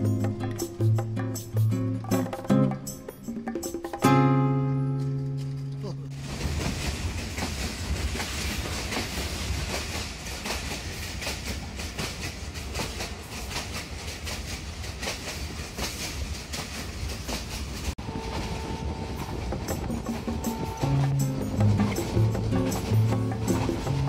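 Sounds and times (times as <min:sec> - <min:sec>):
wheels clicking over rail joints: 0:05.0 - 0:24.0
train rumble and rushing hiss: 0:06.1 - 0:24.0.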